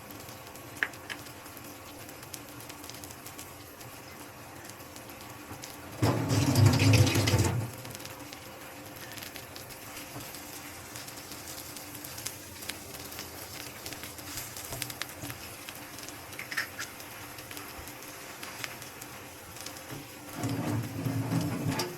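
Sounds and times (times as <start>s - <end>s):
faint clicks and taps: 0.2s - 5.8s.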